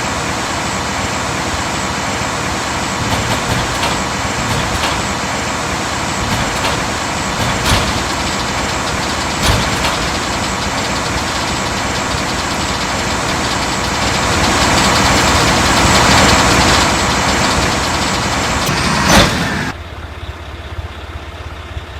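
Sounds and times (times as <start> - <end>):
garbage truck diesel engine running: 0.0 - 21.9
sharp knocks: 3.0 - 5.5, 6.2 - 19.7.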